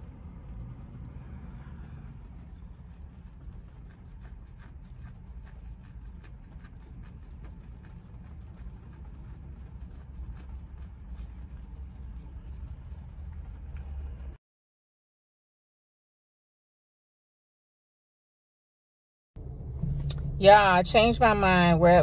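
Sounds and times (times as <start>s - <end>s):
car driving rumble from inside: 0.0s - 14.4s, 19.4s - 22.0s.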